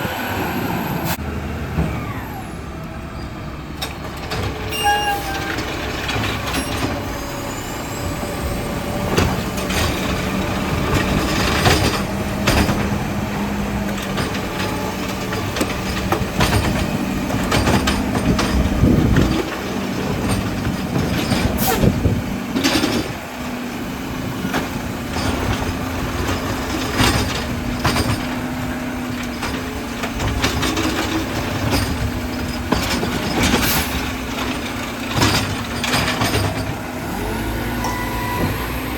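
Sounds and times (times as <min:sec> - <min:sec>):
garbage truck diesel engine: 0:00.0 - 0:38.9
sharp metal clanks and knocks: 0:30.2 - 0:36.8.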